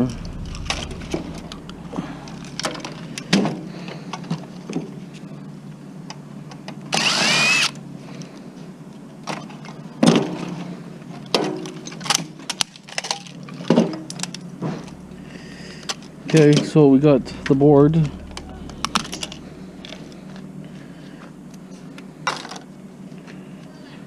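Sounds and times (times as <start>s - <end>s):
wavering pitch burst: 0.0s - 3.3s, 14.6s - 22.3s.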